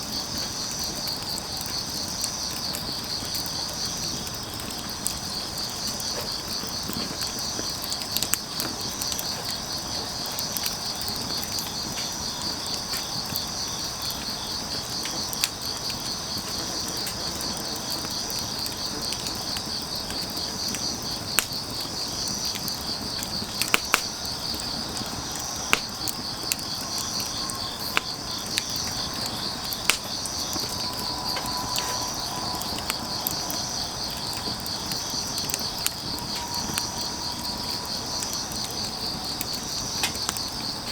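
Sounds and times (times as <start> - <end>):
crickets chirring: 0.0 - 40.9
firewood popping and crackling: 0.0 - 40.9.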